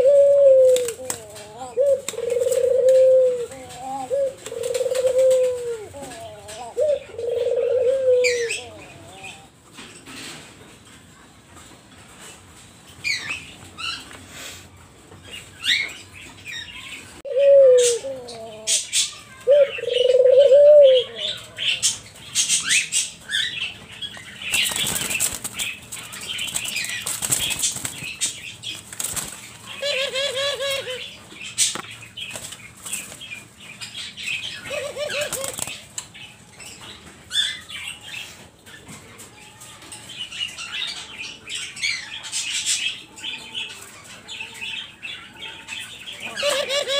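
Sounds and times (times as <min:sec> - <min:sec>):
doves cooing: 0:00.0 - 0:10.3, 0:17.1 - 0:21.8, 0:29.0 - 0:31.3, 0:34.4 - 0:36.0, 0:45.4 - 0:46.9
wings flapping: 0:24.5 - 0:28.2, 0:28.8 - 0:29.5.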